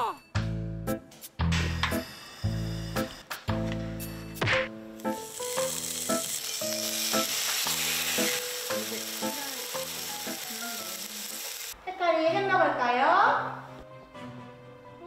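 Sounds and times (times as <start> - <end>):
ham sizzling in a frying pan: 5.0 - 11.8.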